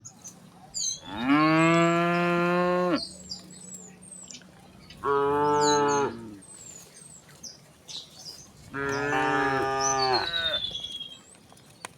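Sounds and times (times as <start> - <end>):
small birds chirping: 0.0 - 11.9
cows mooing: 1.1 - 3.0, 5.0 - 6.4, 8.7 - 10.6.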